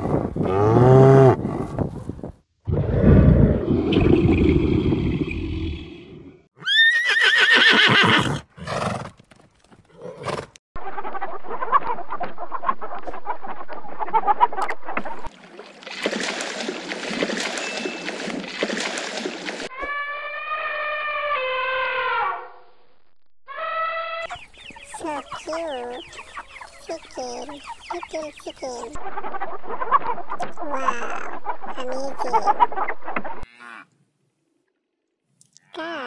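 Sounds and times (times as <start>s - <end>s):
chickens clucking and scratching: 10.8s - 15.3s, 24.3s - 33.4s
low animal call: 19.7s - 22.6s
long pitched animal call: 19.8s - 22.5s, 23.5s - 24.2s
high wavering animal call: 23.5s - 24.4s.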